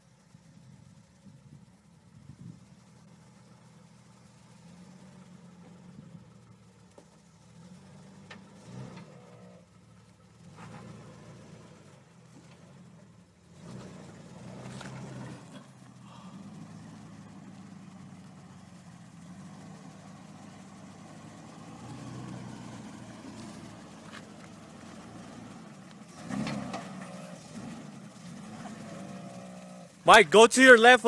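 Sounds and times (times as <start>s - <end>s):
engine running low and steady: 0.0s - 30.3s.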